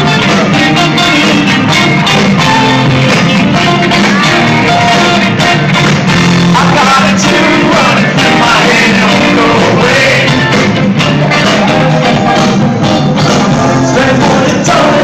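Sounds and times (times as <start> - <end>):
electric guitar: 0.0 - 15.0
rock band playing live: 0.0 - 15.0
person singing: 6.4 - 15.0.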